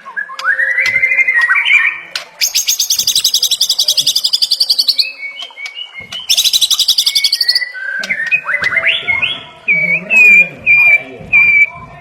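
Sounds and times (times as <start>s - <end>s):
bird whistled notes: 0.0s - 11.8s
bird rattling trills: 0.8s - 9.0s.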